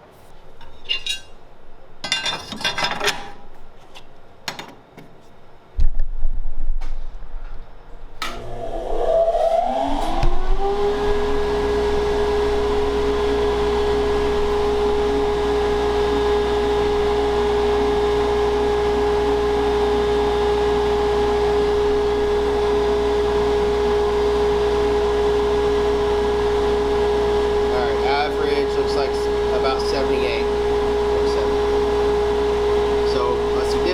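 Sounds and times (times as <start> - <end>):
electric motor whine and hum: 8.2 - 33.9.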